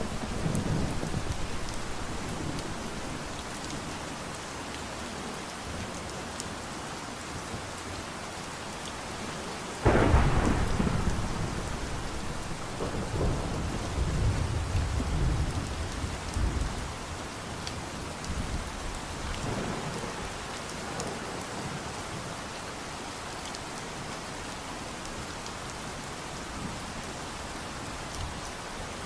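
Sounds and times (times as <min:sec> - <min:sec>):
thunder clap rumbling: 0:00.0 - 0:03.8, 0:09.8 - 0:16.8
steady rain falling: 0:00.0 - 0:29.0.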